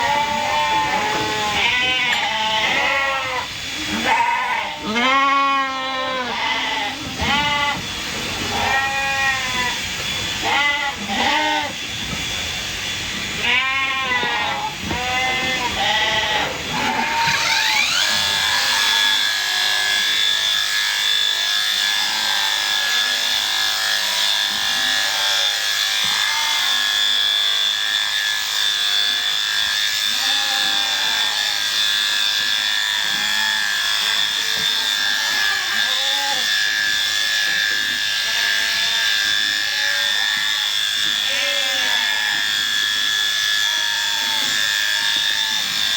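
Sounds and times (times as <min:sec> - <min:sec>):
sheep bleating: 0:00.0 - 0:07.9, 0:08.5 - 0:09.8, 0:10.4 - 0:11.8, 0:13.4 - 0:20.1, 0:24.8 - 0:27.0, 0:30.0 - 0:42.6, 0:43.5 - 0:45.9
electric shearing handpiece whining: 0:00.0 - 0:45.9.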